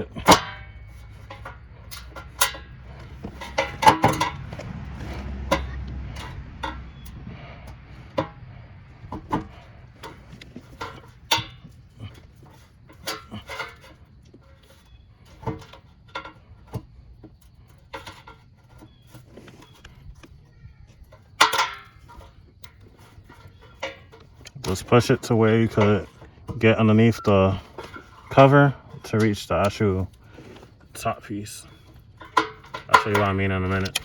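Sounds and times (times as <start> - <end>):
parts being handled: 0.0 - 34.0.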